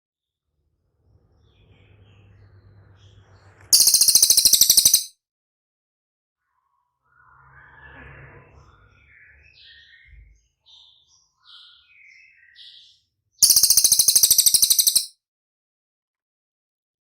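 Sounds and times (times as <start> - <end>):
songbird chirping: 1.6 - 5.1, 8.8 - 15.1
rapid buzzing bird trill: 3.8 - 5.1, 13.4 - 15.1.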